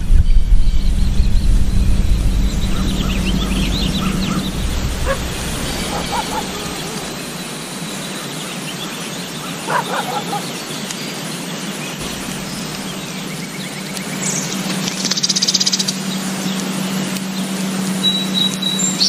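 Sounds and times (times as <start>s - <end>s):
steady background noise: 0.0s - 19.0s
high-pitched bird trill: 2.0s - 8.0s.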